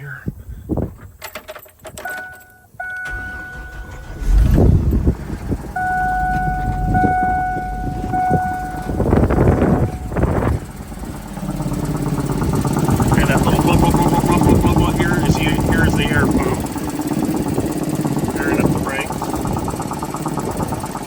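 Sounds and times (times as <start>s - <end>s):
engine cranking and starting: 3.0s - 21.0s
engine running: 3.0s - 21.0s
dashboard warning buzzer: 5.8s - 10.6s
loud rushing surges: 7.7s - 21.0s.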